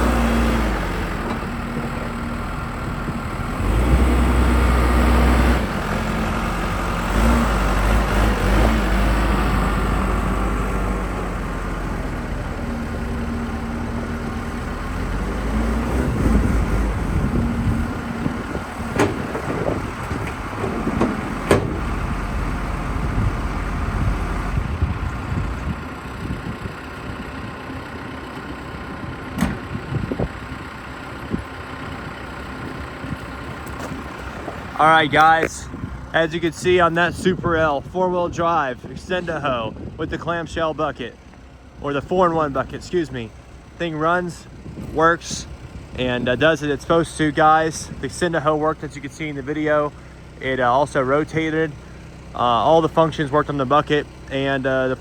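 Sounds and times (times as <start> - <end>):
diesel engine running with whine: 0.0 - 55.0.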